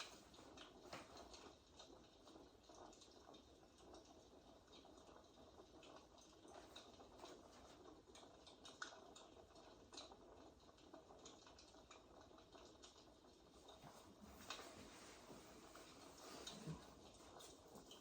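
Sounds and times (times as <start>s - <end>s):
fireplace crackling: 0.0s - 3.1s, 12.7s - 18.0s.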